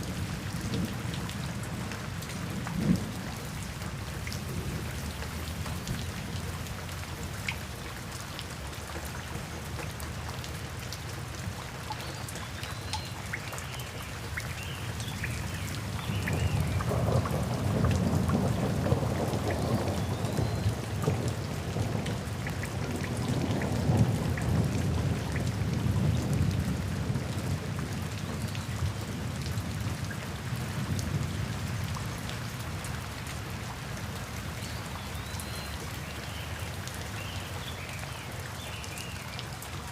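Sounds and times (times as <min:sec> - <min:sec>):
low rumble of thunder: 0:00.0 - 0:06.5, 0:15.4 - 0:32.1
rain drops ticking: 0:00.0 - 0:39.9.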